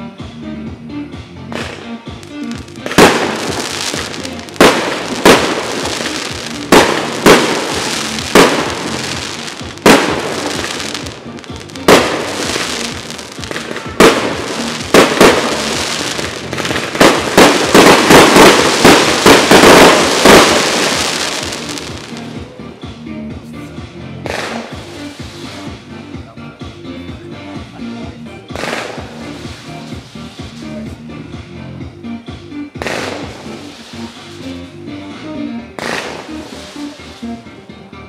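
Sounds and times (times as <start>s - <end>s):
firework crackling: 1.5s - 22.5s, 24.3s - 25.8s, 28.6s - 30.8s, 32.8s - 34.7s, 35.8s - 37.3s
firework shells bursting: 2.4s - 22.3s.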